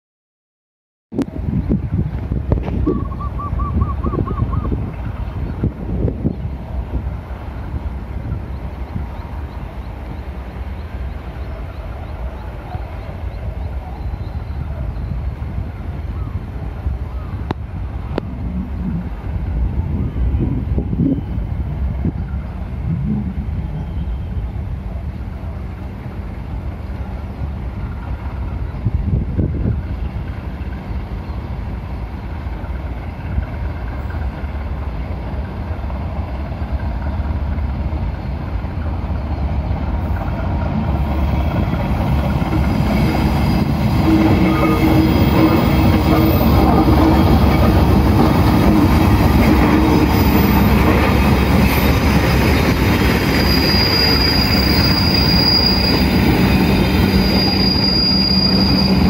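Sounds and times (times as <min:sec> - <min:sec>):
locomotive engine rumble: 0:01.2 - 0:59.0
train wheels on rails: 0:01.2 - 0:59.0
high wheel squeal: 0:41.1 - 0:59.0.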